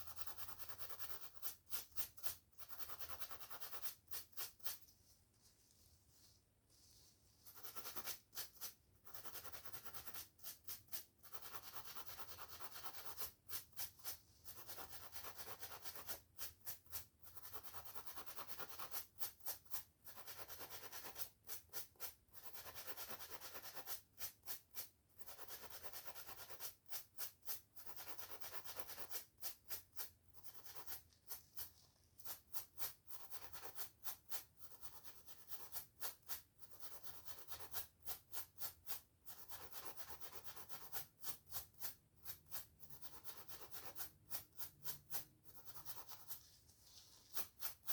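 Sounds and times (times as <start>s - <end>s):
brushing and scratching hair: 1.4s - 17.1s, 26.2s - 36.4s, 37.2s - 47.9s.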